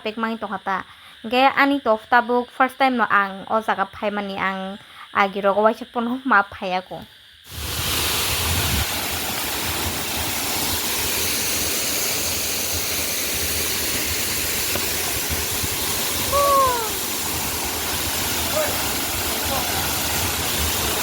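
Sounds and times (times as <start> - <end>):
waterfall rushing: 7.5 - 21.0
falling call: 16.3 - 17.2.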